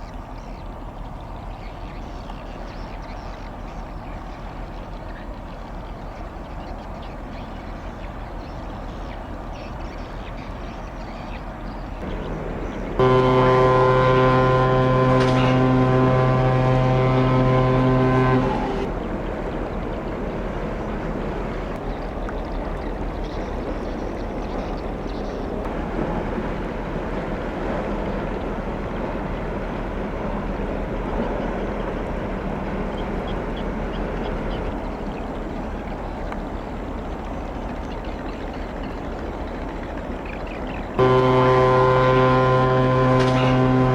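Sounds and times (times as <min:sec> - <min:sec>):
rumble of background noise: 0:00.0 - 0:43.9
ship's horn blast: 0:12.0 - 0:21.8, 0:25.6 - 0:35.6, 0:41.0 - 0:43.9.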